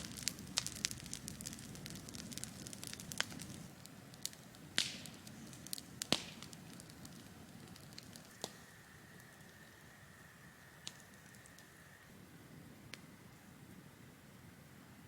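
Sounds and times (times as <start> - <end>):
burning wood popping: 0.0 - 9.9, 10.6 - 11.9
campfire crackling: 0.0 - 15.0.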